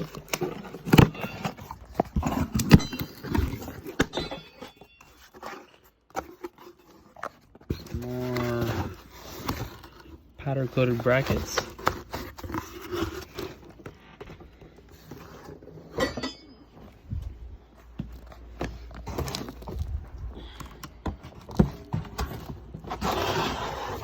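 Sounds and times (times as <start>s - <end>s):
rustling packaging: 0.0s - 16.0s, 16.7s - 24.0s
metal brackets clinking: 2.7s - 5.3s.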